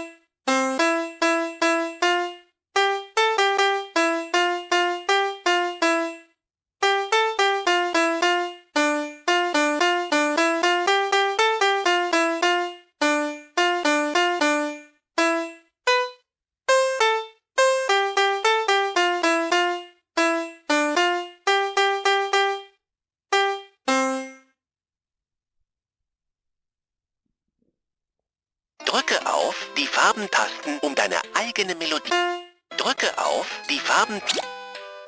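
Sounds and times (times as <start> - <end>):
toy playing beeping melody: 6.8 - 24.4, 28.9 - 35.0.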